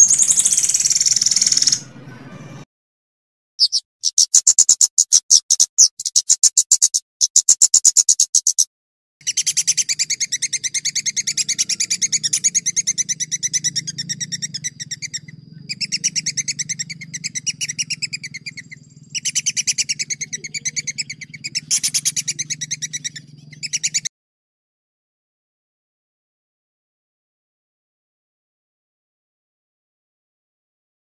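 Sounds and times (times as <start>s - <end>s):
songbird rolling trill: 0.0s - 2.2s, 9.2s - 24.1s
faint low hum: 9.8s - 24.0s.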